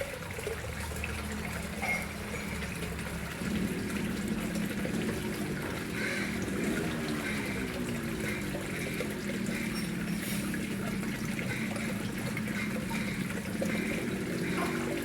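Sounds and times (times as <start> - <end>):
water trickling into pond: 0.0 - 15.0.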